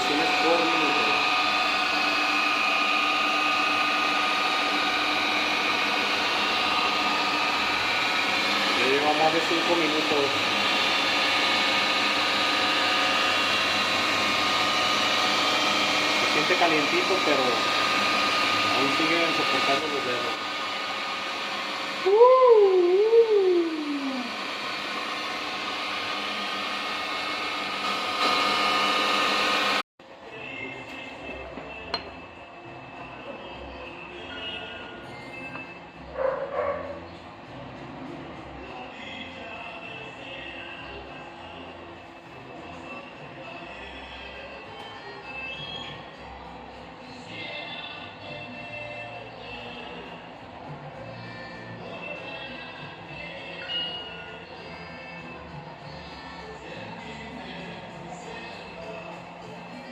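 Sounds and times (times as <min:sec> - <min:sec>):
machine motor hum with high whine: 0:00.0 - 0:36.2.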